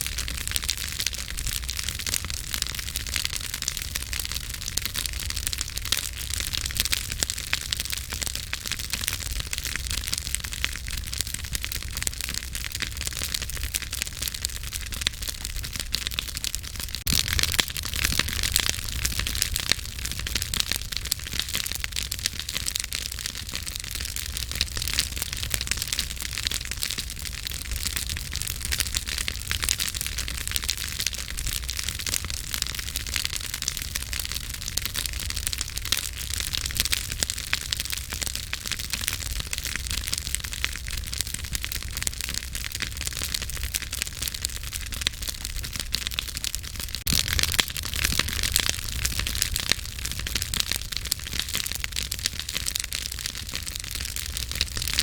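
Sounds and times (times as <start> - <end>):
low rumble of flames: 0.0 - 55.0
wood crackling and popping: 0.0 - 55.0.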